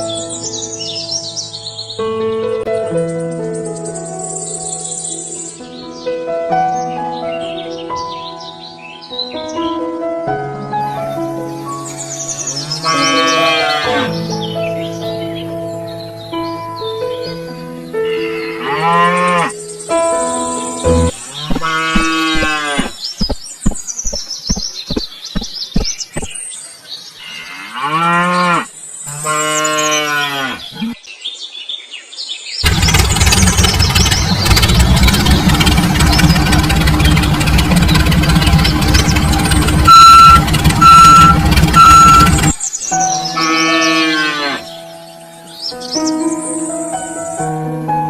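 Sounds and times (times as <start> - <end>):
cattle mooing: 12.4 - 14.1, 18.2 - 19.5, 20.9 - 23.0, 27.2 - 31.0, 39.9 - 42.5, 43.3 - 44.7
short beeps: 20.9 - 21.1, 39.9 - 42.5
loud dense rumbling: 32.6 - 42.6.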